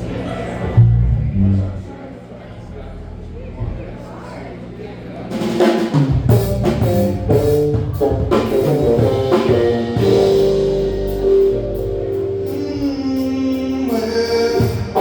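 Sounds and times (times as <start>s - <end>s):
drum kit hits: 5.3s - 15.0s
live band playing: 5.3s - 15.0s.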